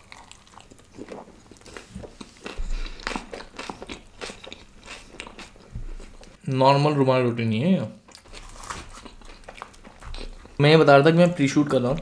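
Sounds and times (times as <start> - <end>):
person chewing: 0.0 - 6.4, 8.1 - 10.6.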